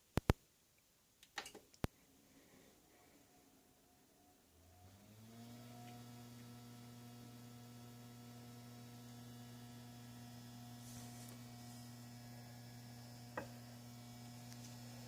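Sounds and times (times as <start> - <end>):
hard drive spinning up and humming: 4.8 - 15.0.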